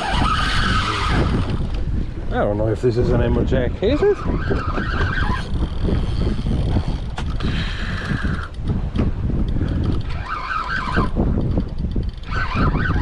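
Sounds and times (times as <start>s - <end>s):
fishing reel ratcheting: 0.0s - 1.8s, 4.5s - 8.8s, 9.4s - 13.0s
fishing reel whirring: 0.0s - 1.8s, 4.1s - 13.0s
wind buffeting microphone: 0.0s - 13.0s.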